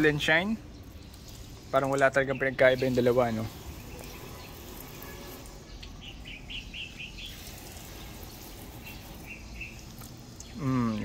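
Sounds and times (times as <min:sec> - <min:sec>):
hose spraying water: 0:00.0 - 0:11.0
small bird chirping: 0:00.7 - 0:11.0.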